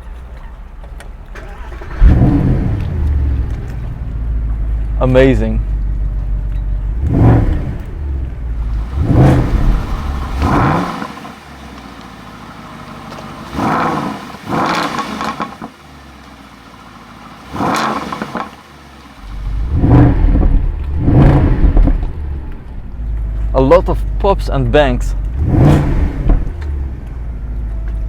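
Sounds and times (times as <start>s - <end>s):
exhaust pops and bangs: 0.0s - 11.8s, 19.2s - 28.0s
car engine revving: 0.0s - 28.0s.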